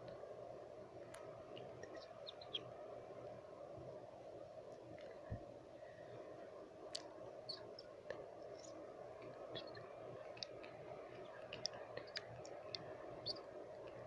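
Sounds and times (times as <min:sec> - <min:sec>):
low white-noise hiss: 0:00.0 - 0:14.0
tongue clicks and lip smacks: 0:11.4 - 0:12.8.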